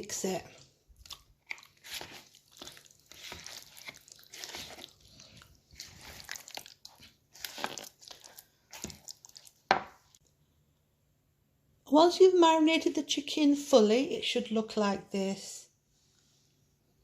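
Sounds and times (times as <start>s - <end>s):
wet squelching of mixing meat: 0.0s - 10.2s.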